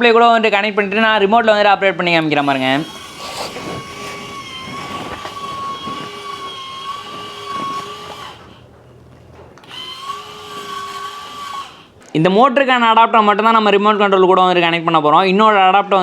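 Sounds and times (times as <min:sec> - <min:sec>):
electric motor whining: 0:00.0 - 0:12.1.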